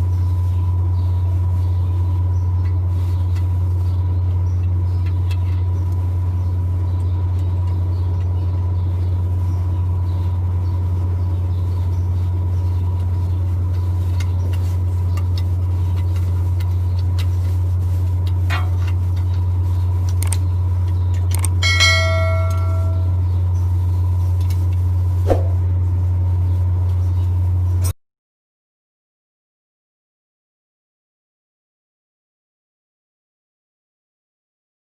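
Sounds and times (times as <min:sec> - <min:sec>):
diesel truck engine idling: 0:00.0 - 0:27.6
metal part ringing when struck: 0:21.6 - 0:23.2.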